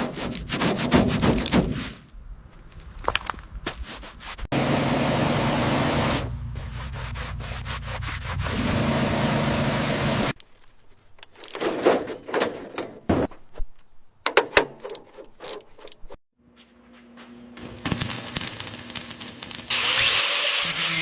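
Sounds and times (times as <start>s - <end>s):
tools knocking and clicking: 11.2s - 16.2s.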